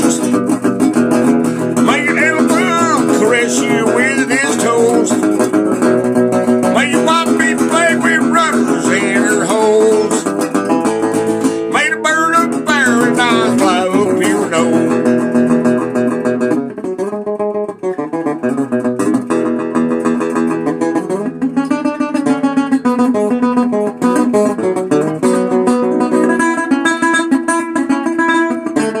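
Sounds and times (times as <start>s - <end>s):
guitar strummed and picked: 0.0s - 29.0s.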